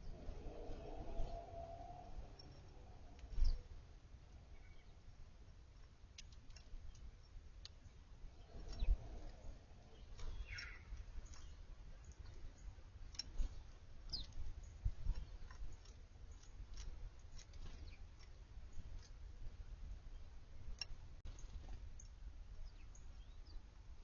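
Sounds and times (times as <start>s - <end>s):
low rumble: 0.0s - 4.4s
birds clicking and ticking: 0.0s - 23.7s
bird chirps: 4.5s - 5.0s, 6.5s - 16.7s.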